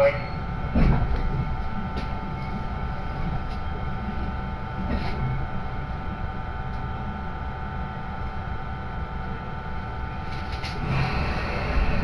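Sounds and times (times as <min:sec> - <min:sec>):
train low rumble: 0:00.0 - 0:12.0
high-pitched electric whine: 0:10.8 - 0:12.0.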